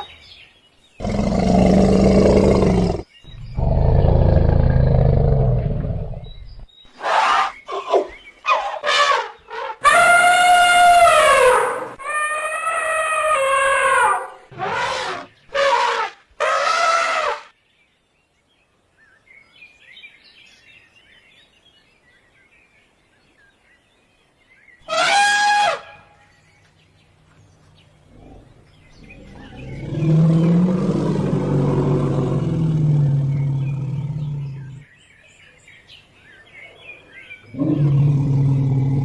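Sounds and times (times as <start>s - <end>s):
faint bird chirping: 0.0s - 11.6s, 25.9s - 39.0s
elephant trumpeting: 8.5s - 17.5s, 24.9s - 26.0s.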